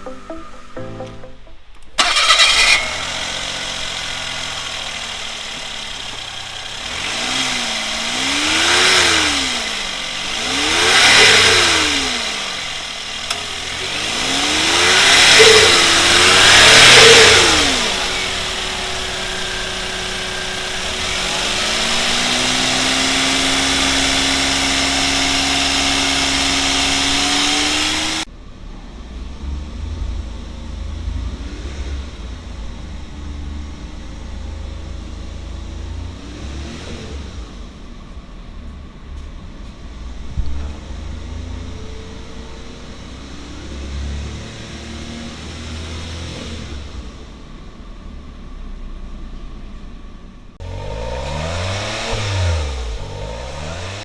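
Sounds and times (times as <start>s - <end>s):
engine cranking: 1.7s - 28.3s
engine idling and revving: 1.9s - 54.0s.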